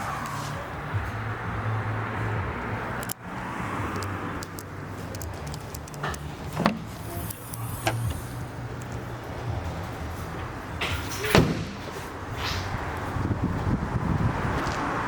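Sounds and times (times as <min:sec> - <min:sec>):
car engine idling: 0:00.9 - 0:14.1
sharp clicks: 0:03.9 - 0:09.0.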